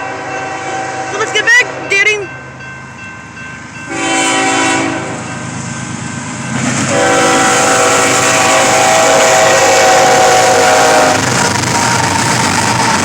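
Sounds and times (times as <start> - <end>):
locomotive air horn: 0.0 - 1.9, 3.9 - 5.3, 6.9 - 12.0
train rumble: 0.0 - 13.0.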